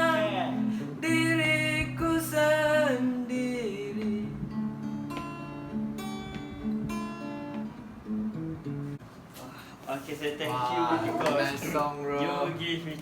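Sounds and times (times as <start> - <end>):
acoustic guitar strummed chords: 0.0 - 9.0.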